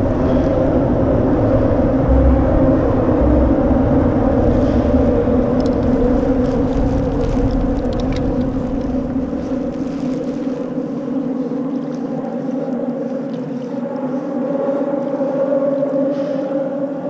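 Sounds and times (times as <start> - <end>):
boat motor humming: 0.0 - 9.8
wind buffeting microphone: 0.0 - 17.0.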